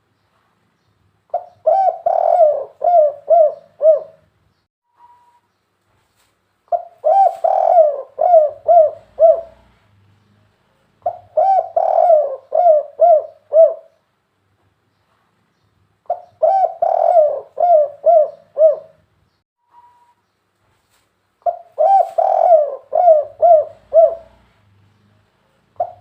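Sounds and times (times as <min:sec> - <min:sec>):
dove cooing: 0:01.3 - 0:04.2, 0:06.7 - 0:09.9, 0:11.0 - 0:14.0, 0:16.1 - 0:19.0, 0:21.4 - 0:25.2, 0:25.8 - 0:26.0.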